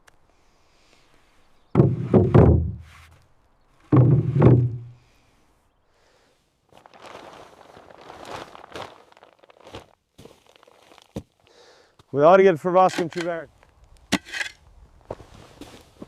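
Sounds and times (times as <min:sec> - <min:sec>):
rustling scrape: 0:12.8 - 0:13.4, 0:14.1 - 0:16.0.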